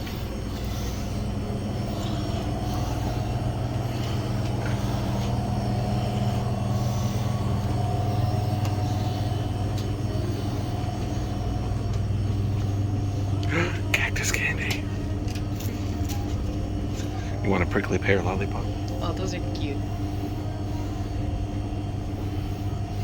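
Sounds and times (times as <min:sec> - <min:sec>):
low mechanical motor hum: 0:00.0 - 0:23.0.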